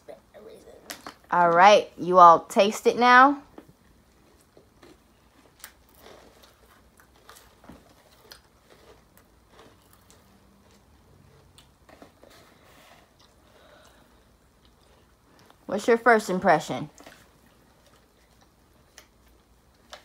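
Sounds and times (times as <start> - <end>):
faint chewing: 3.5 - 15.7, 16.9 - 20.0.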